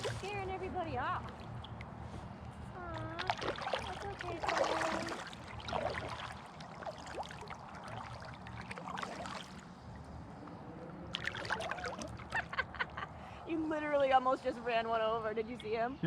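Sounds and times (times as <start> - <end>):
kayak paddle splashing: 0.0 - 10.1, 11.1 - 12.6.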